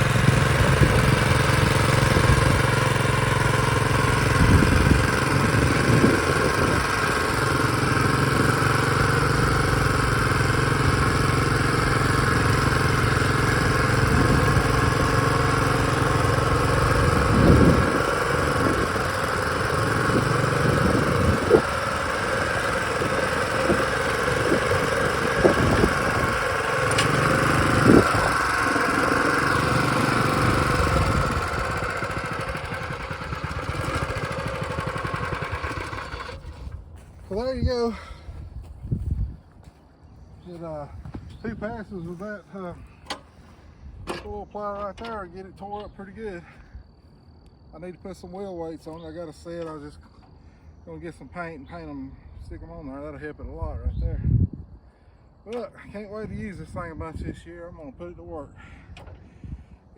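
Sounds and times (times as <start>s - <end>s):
small tractor engine running: 0.0s - 38.0s, 40.5s - 46.6s
short metal clanks: 43.0s - 43.4s, 44.0s - 46.0s.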